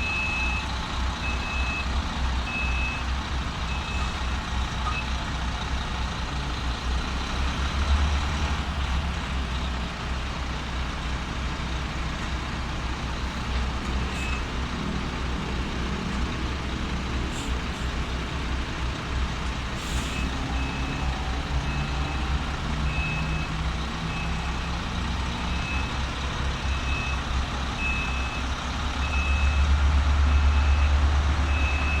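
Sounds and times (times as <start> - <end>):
reverse alarm beeps: 0.0 - 1.9, 27.8 - 29.7, 30.3 - 32.0
diesel truck engine running: 0.0 - 32.0.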